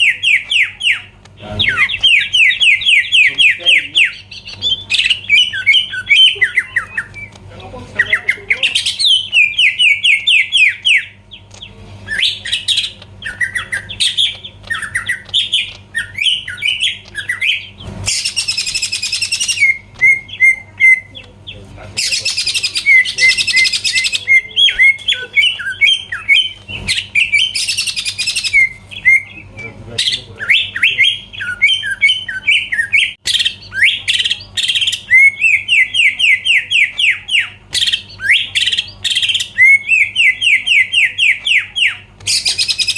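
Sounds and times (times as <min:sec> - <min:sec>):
harsh rasping bird calls: 0:00.0 - 0:42.9
bird singing whistled notes: 0:12.1 - 0:21.2, 0:22.0 - 0:42.9.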